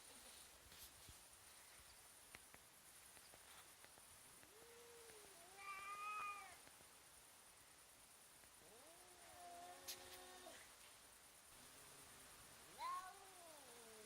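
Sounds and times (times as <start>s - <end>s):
cat yowling: 4.6s - 6.6s, 12.8s - 14.0s.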